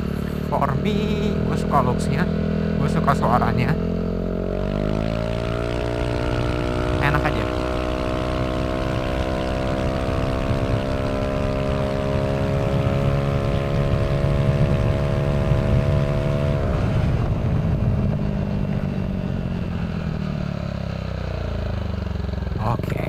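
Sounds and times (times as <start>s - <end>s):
motor scooter engine revving: 0.0s - 23.0s.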